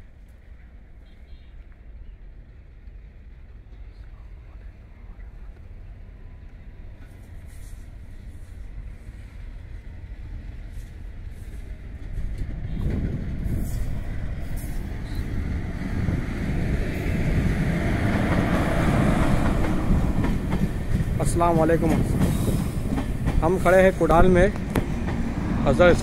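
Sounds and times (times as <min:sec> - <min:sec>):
train rumble: 0:00.0 - 0:26.0
train wheel noise: 0:01.7 - 0:26.0.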